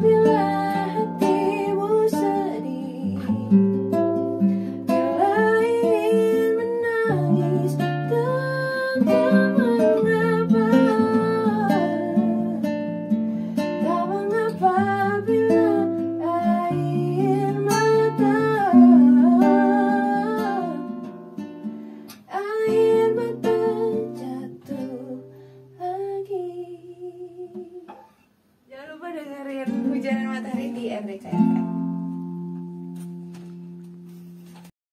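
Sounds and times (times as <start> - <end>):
person singing: 0.0 - 3.8, 4.9 - 12.8, 13.8 - 21.0, 22.3 - 27.9
acoustic guitar chords: 0.0 - 34.7.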